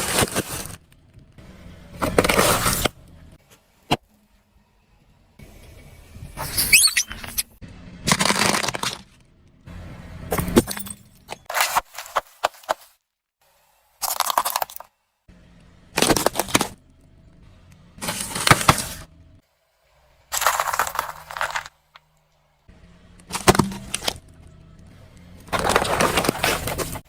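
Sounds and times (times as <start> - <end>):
objects crunching under car tyre: 0.0 - 1.3, 1.9 - 3.0, 6.4 - 9.2, 10.3 - 13.0, 16.0 - 16.8, 18.0 - 19.1, 20.3 - 22.1, 23.2 - 24.5, 25.3 - 27.0.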